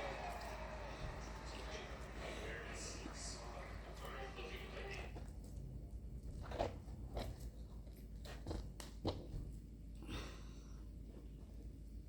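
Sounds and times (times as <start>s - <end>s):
fruit scraping or crunching: 6.3s - 8.7s.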